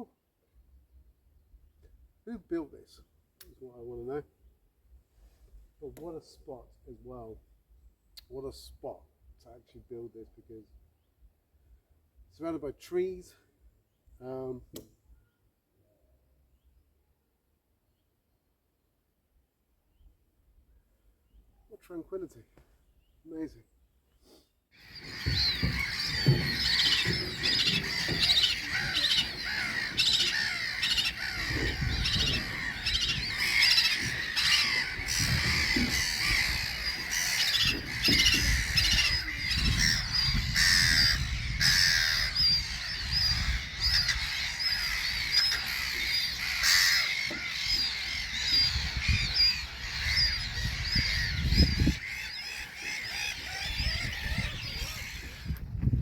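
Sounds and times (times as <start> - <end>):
low uneven rumble: 24.8 - 38.7
birds squawking and calling: 24.8 - 56.0.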